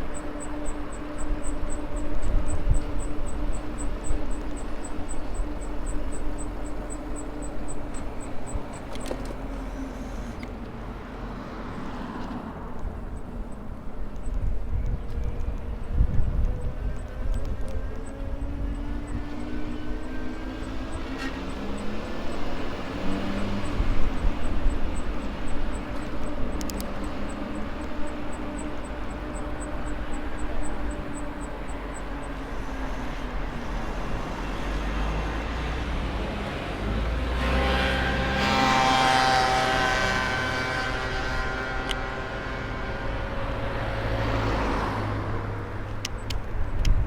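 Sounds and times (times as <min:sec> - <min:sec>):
wind rumble on microphone: 0:00.0 - 0:09.9, 0:12.4 - 0:47.0
low drone: 0:00.0 - 0:10.6
multi-pitched humming: 0:00.0 - 0:10.8, 0:15.6 - 0:35.5.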